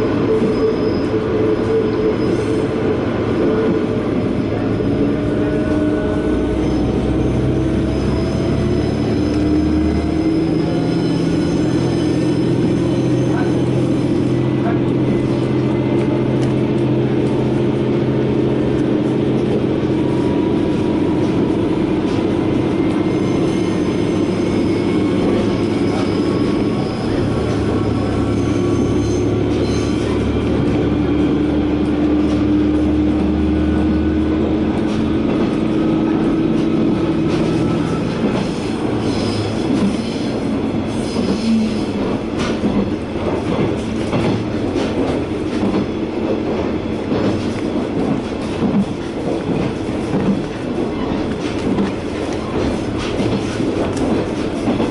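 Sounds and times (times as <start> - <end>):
wheels rumbling on rail: 0.0 - 54.9
faint wheel squeal: 0.3 - 2.7, 6.6 - 14.2, 23.0 - 30.2.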